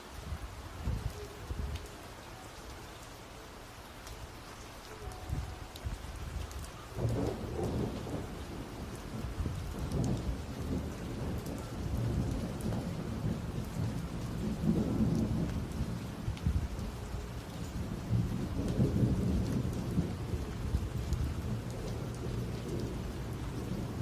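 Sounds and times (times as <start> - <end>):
steady rain: 0.0 - 24.0
thunder rumbling: 5.0 - 24.0.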